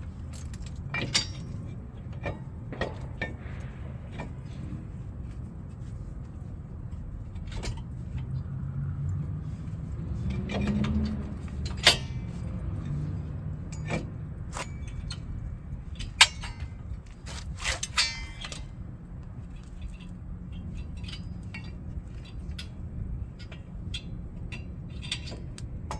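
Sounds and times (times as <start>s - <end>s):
low steady rumble: 0.0s - 25.9s
metal tools clinking: 0.1s - 3.6s, 9.0s - 18.8s.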